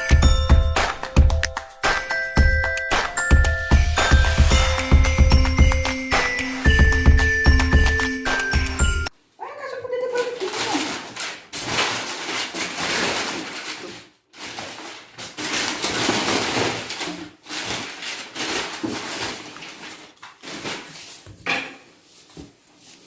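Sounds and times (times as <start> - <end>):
objects scraping and rustling: 10.2 - 23.0.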